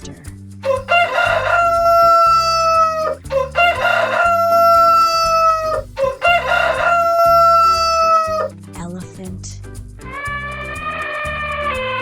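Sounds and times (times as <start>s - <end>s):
rooster crowing: 0.6s - 8.5s.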